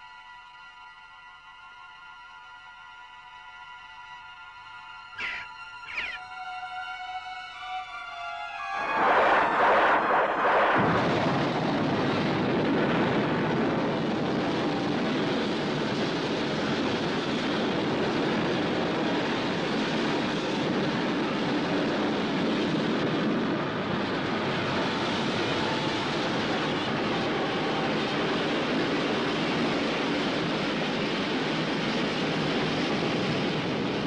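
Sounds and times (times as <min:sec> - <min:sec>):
steady rushing noise: 0:08.6 - 0:34.0.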